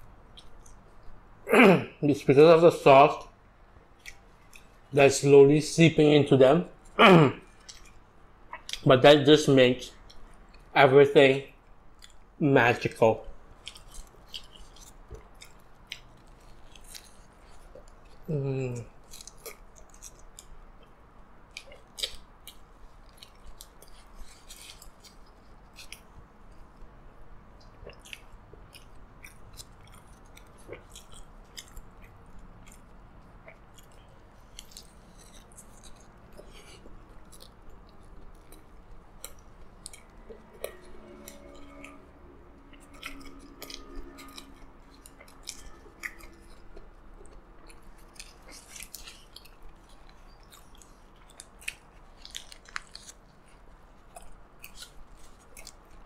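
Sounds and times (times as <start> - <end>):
chewing with wet mouth clicks: 0.0 - 1.2, 3.8 - 4.9, 7.4 - 8.9, 11.6 - 12.4, 13.3 - 26.9, 27.5 - 56.0
muffled hum with full mouth: 0.0 - 3.4, 17.0 - 19.6
paper wrapper crinkling: 47.8 - 56.0.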